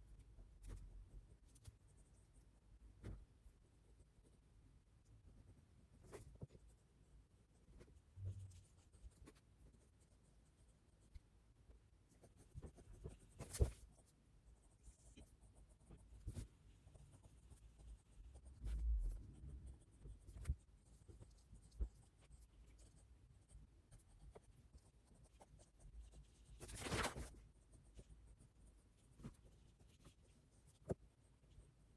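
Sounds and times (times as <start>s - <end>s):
pen scratching on paper: 7.6s - 11.1s, 12.1s - 26.6s.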